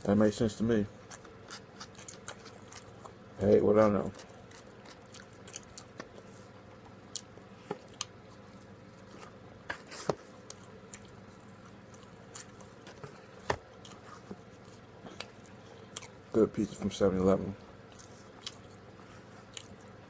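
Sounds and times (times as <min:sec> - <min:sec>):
faint steady hum: 0:00.0 - 0:20.0
person chewing with mouth clicks: 0:01.0 - 0:03.2, 0:04.0 - 0:06.2, 0:15.1 - 0:16.2, 0:17.9 - 0:18.8, 0:19.4 - 0:19.9.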